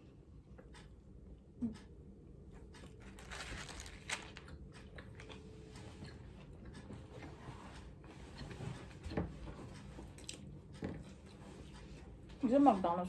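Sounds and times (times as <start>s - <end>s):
person chewing crunchy food: 2.7s - 7.0s, 9.8s - 11.4s.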